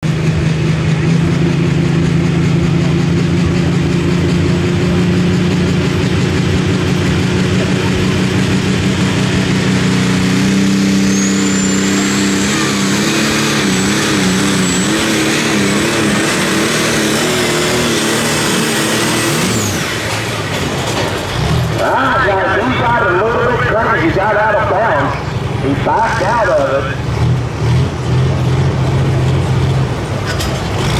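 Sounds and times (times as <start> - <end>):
tractor diesel engine running hard: 0.0 - 30.9
high turbo whistle: 10.2 - 16.5.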